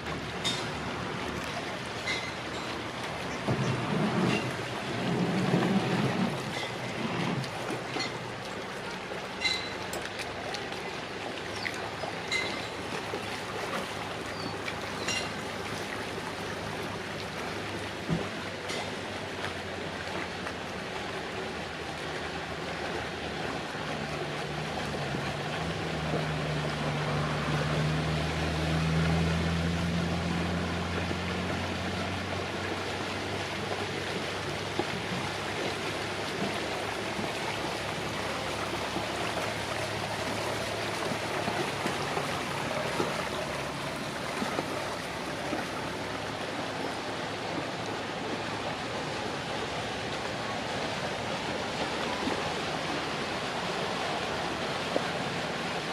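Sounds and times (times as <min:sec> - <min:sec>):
boat engine humming: 0:00.0 - 0:55.9
water and wind noise: 0:00.0 - 0:55.9.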